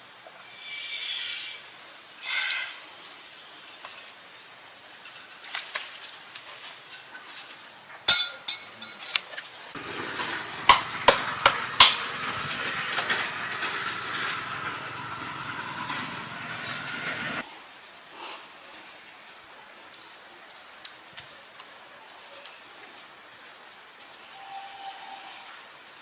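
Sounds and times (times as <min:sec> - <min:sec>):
high insect drone: 0:00.0 - 0:02.9
steady rushing hiss: 0:00.0 - 0:17.5
sharp knocks: 0:09.8 - 0:17.4.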